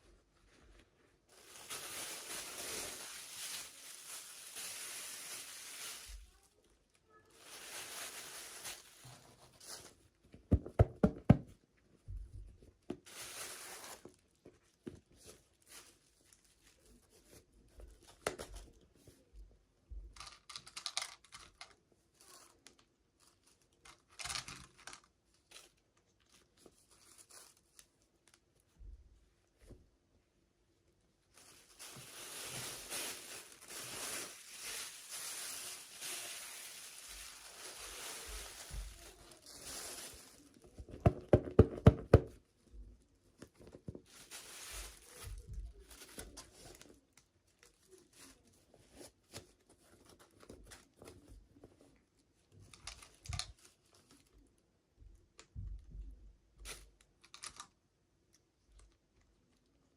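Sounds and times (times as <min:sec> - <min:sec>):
packaging crinkling: 0:01.3 - 0:06.4, 0:07.4 - 0:10.0, 0:13.0 - 0:14.3, 0:31.3 - 0:41.7, 0:43.6 - 0:48.5.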